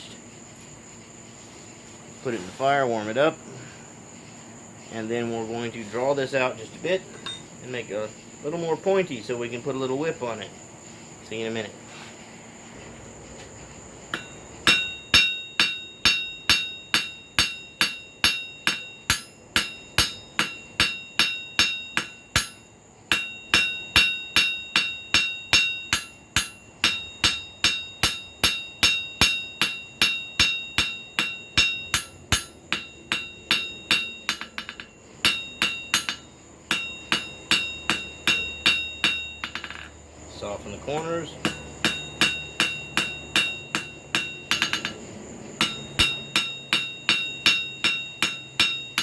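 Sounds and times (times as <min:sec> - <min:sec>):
hammer ringing on anvil: 0:07.2 - 0:07.5, 0:14.1 - 0:39.9, 0:41.0 - 0:49.0.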